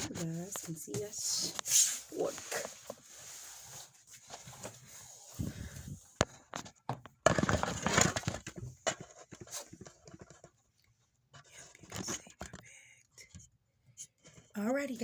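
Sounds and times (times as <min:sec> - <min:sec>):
rustling and scraping: 0:00.0 - 0:12.7
objects knocking and clicking: 0:06.2 - 0:10.6.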